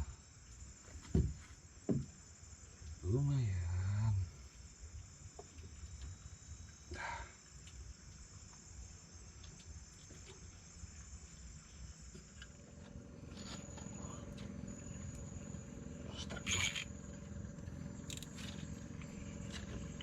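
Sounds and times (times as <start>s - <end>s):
crickets chirring: 0.0s - 20.0s
faint steady hum: 0.0s - 20.0s
faint low rumble: 12.0s - 20.0s.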